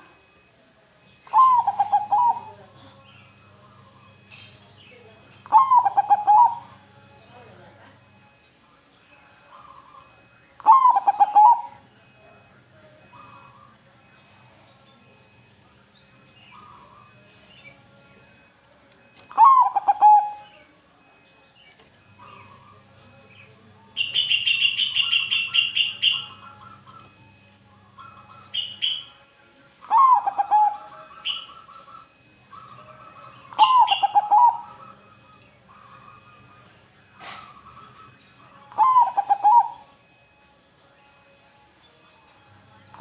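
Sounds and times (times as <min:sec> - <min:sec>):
dove cooing: 0:01.2 - 0:02.8, 0:05.4 - 0:08.4, 0:09.4 - 0:13.8, 0:19.0 - 0:21.2, 0:29.8 - 0:36.5, 0:37.1 - 0:40.3
rapid high chirping: 0:24.0 - 0:26.7.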